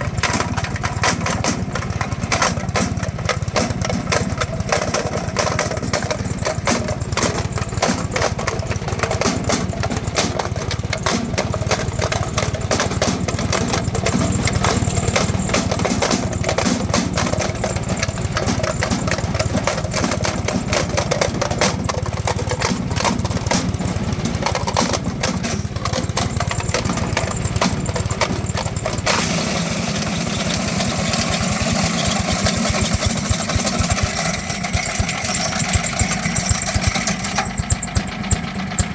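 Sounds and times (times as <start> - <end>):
wood chipper engine running: 0.0 - 38.9.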